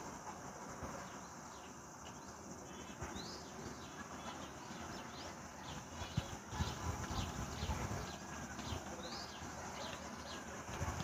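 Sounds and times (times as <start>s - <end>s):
steady background hiss: 0.0s - 11.0s
small birds chirping: 0.2s - 11.0s.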